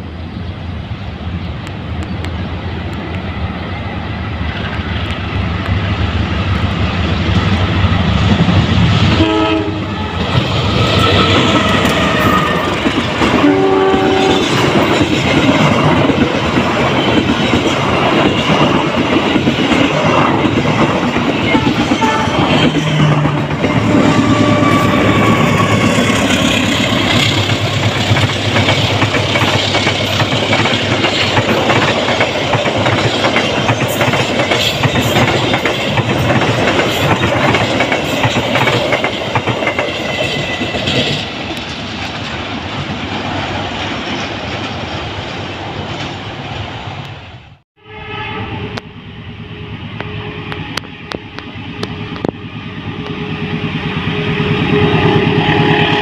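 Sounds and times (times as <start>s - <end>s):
diesel locomotive engine rumbling: 0.0s - 56.0s
train horn: 9.1s - 14.7s, 21.3s - 26.2s, 47.8s - 51.2s, 53.0s - 56.0s
train wheels clattering over rails: 10.1s - 46.2s.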